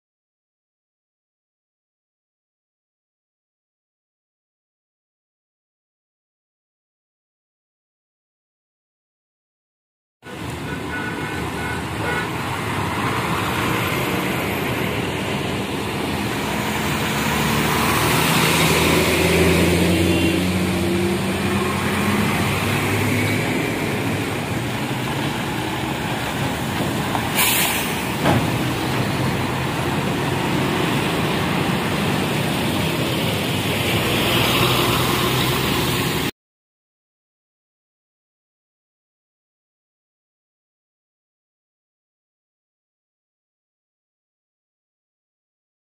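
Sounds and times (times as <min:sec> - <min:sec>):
bus and truck passing: 0:10.2 - 0:36.3
short sharp air hiss: 0:27.3 - 0:28.1.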